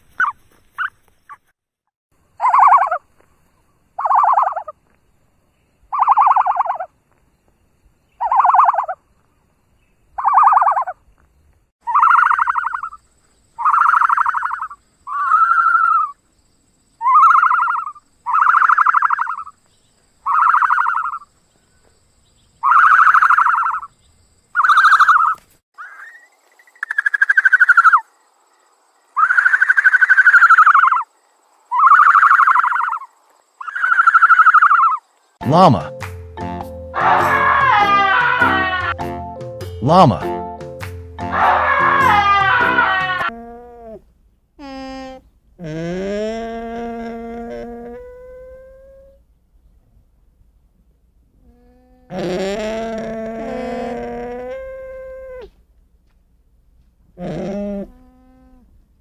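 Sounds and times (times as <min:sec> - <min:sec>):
animal calling: 0:02.4 - 0:03.0, 0:04.0 - 0:04.7, 0:05.9 - 0:06.9, 0:08.2 - 0:09.0, 0:11.8 - 0:13.0, 0:13.6 - 0:16.2, 0:17.0 - 0:19.5, 0:20.2 - 0:21.2, 0:22.6 - 0:23.9, 0:24.6 - 0:28.1, 0:29.2 - 0:31.1, 0:31.7 - 0:36.0, 0:36.9 - 0:39.1, 0:41.2 - 0:44.0, 0:51.4 - 0:55.6, 0:57.2 - 0:58.7.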